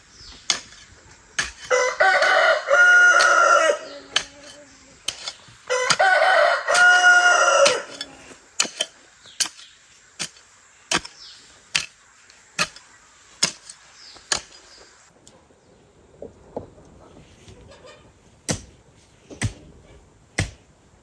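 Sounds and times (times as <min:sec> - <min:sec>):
rooster crowing: 0:01.6 - 0:04.0, 0:05.7 - 0:08.1.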